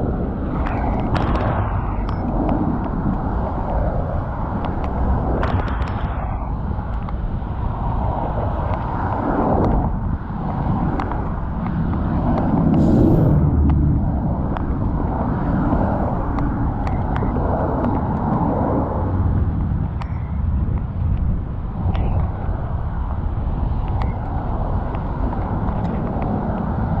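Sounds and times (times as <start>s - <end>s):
moving air: 0.0s - 19.8s
traffic rumble: 0.0s - 27.0s.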